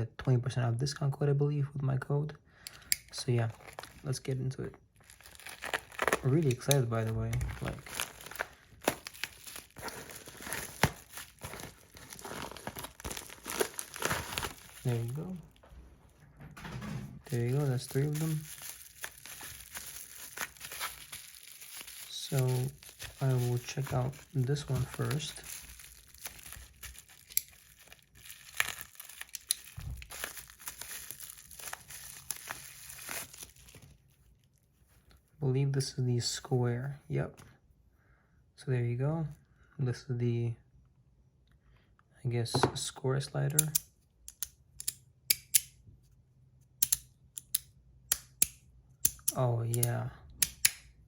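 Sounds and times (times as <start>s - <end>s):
packaging crinkling and tearing: 3.1s - 15.6s, 17.2s - 34.6s
sharp clicks and snaps: 43.5s - 45.8s, 46.8s - 50.9s.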